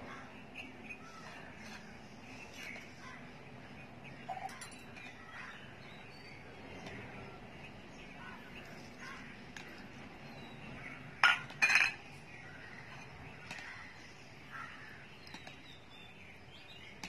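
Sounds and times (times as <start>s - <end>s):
faint bird chirps: 0.0s - 11.1s.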